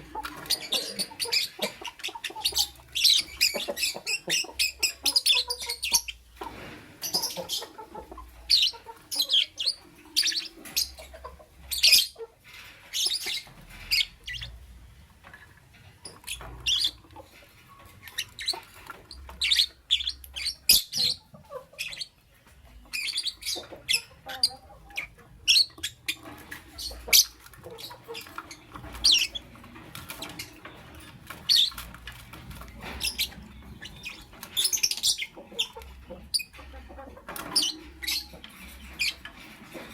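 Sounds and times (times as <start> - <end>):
lovebird chirping: 22.8 - 29.6, 32.8 - 36.6.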